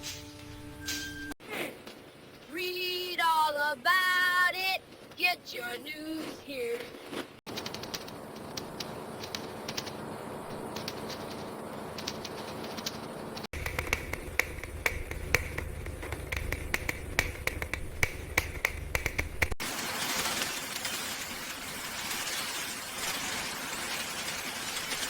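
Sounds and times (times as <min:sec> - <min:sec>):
sharp clicks and taps: 0:10.7 - 0:19.6.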